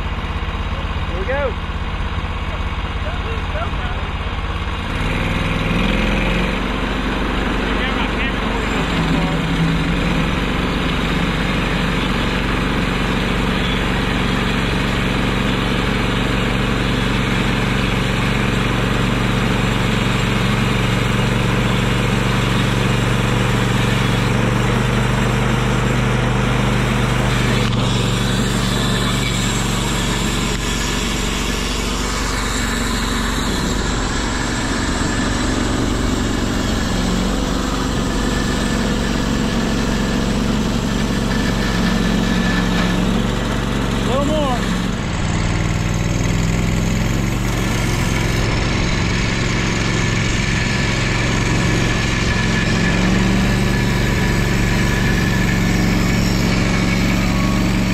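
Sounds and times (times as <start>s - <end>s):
sawmill gas engine running: 0.0s - 57.9s
band blade cutting log: 21.4s - 45.0s.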